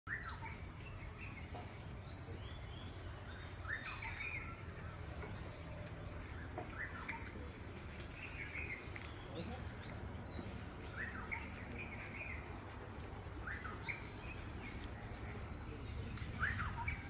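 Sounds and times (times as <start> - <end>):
birds chirping and calling: 0.1 - 17.0.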